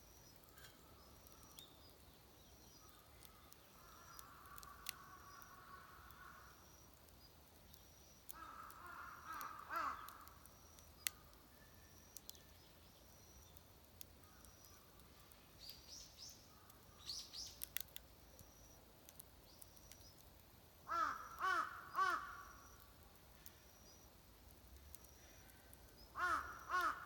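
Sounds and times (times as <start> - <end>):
crows cawing: 3.2 - 6.6, 8.3 - 10.5, 20.9 - 22.8, 26.1 - 27.0
sharp clicks: 17.6 - 20.3.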